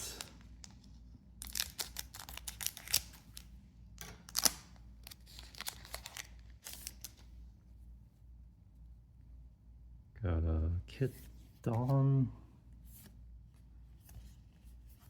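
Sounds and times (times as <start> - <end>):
foil wrapper crinkling and tearing: 1.4 - 3.5, 4.1 - 7.2.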